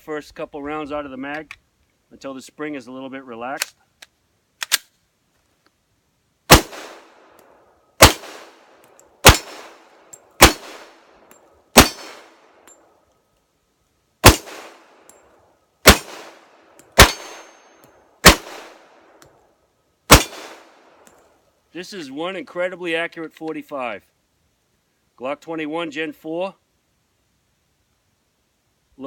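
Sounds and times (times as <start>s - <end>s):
pistol shots: 6.5s - 7.1s, 8.0s - 8.6s, 9.2s - 9.8s, 10.4s - 11.0s, 11.8s - 12.3s, 14.2s - 14.8s, 15.8s - 16.4s, 17.0s - 17.6s, 18.2s - 18.8s, 20.1s - 20.7s
steel target ringing: 17.0s - 17.7s.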